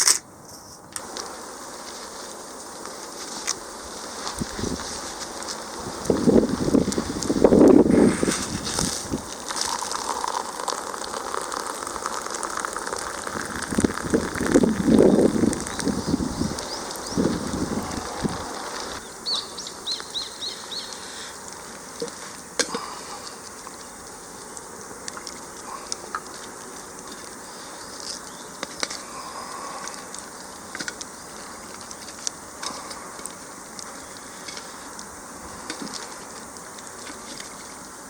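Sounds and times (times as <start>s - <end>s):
campfire crackling: 0.0s - 38.0s
bird chirping: 19.0s - 21.0s.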